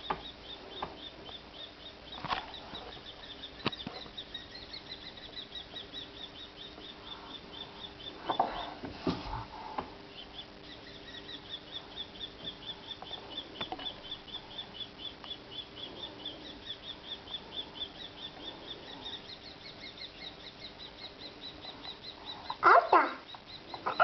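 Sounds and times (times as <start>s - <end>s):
birds cheeping: 0.0s - 24.0s.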